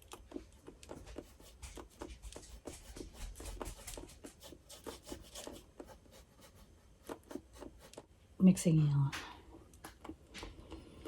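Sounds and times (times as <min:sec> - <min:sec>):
paintbrush strokes: 0:00.0 - 0:08.2.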